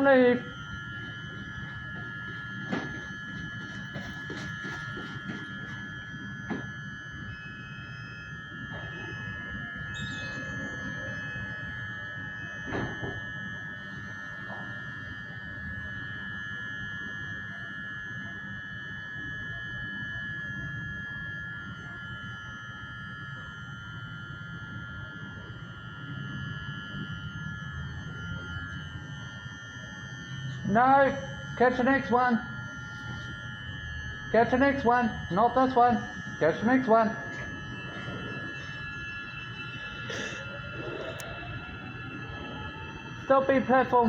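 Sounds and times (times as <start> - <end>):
train equipment whine and rumble: 0.0 - 44.0
short beeps: 10.0 - 11.2.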